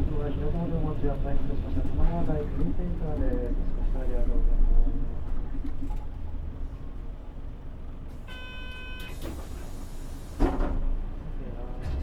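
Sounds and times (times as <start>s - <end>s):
bus engine idling: 0.0s - 11.8s
short electronic beep: 8.3s - 9.2s.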